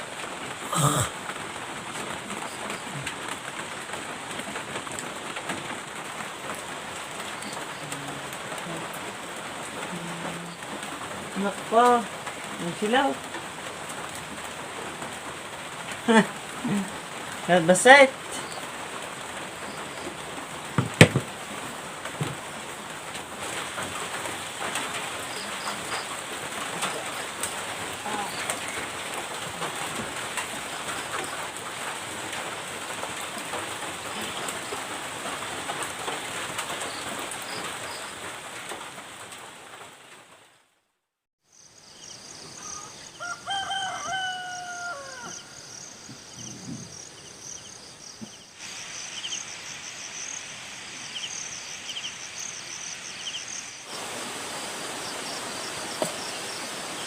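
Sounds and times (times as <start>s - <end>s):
steady rain falling: 0.0s - 57.0s
insects trilling: 16.0s - 21.3s, 23.5s - 35.1s, 41.5s - 57.0s.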